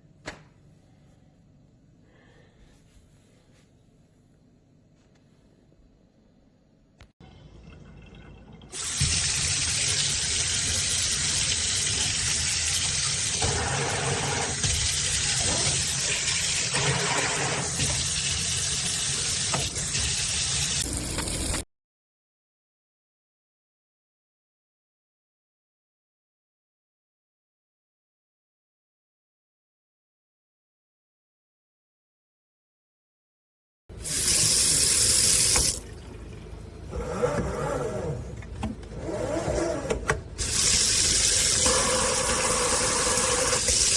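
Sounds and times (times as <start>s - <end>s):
faucet water running into sink: 7.2s - 21.6s, 34.0s - 36.6s, 40.4s - 43.9s.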